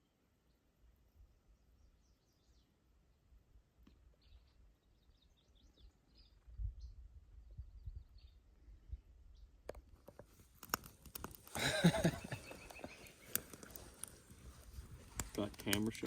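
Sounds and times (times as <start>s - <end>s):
faint bird chirps: 0.0s - 9.6s, 11.5s - 15.4s.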